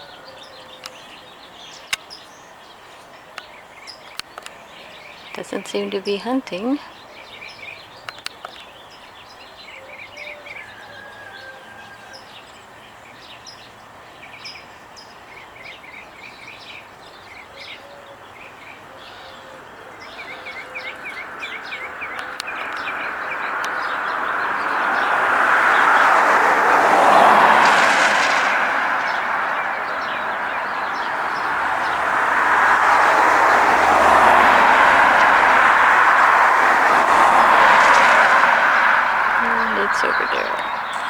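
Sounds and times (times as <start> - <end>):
vehicle approaching: 20.0 - 41.0
small birds chirping: 38.8 - 41.0.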